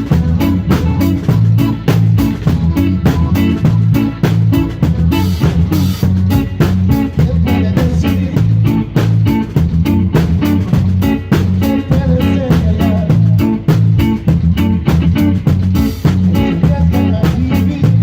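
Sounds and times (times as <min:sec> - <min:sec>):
live band playing: 0:00.0 - 0:18.0.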